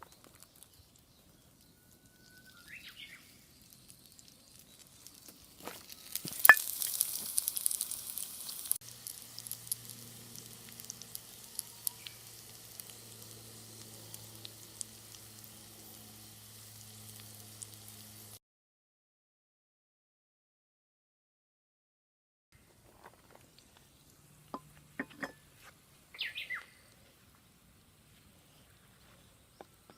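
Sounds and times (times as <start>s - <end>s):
dumplings sizzling in a skillet: 0.0s - 18.4s.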